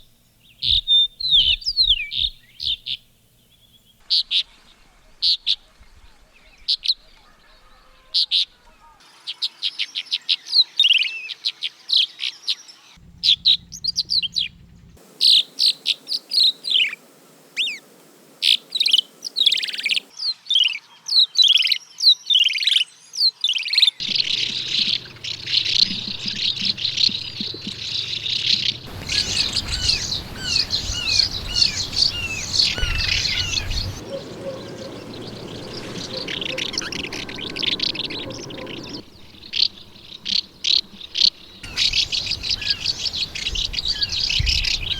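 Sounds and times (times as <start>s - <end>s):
swallows twittering: 0.0s - 4.0s, 13.0s - 17.0s, 18.4s - 20.1s, 24.0s - 44.9s.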